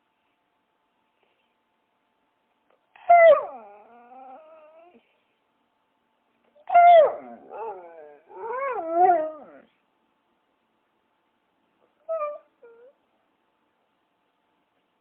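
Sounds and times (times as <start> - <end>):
dog whining: 2.9 - 5.1, 6.6 - 9.8, 12.0 - 13.0
dog whimpering: 3.0 - 5.0, 6.6 - 9.7, 12.0 - 13.0.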